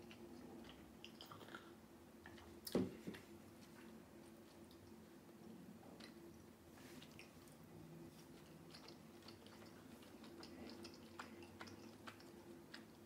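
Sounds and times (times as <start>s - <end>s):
chewing close-up: 0.0s - 2.5s, 7.0s - 13.0s.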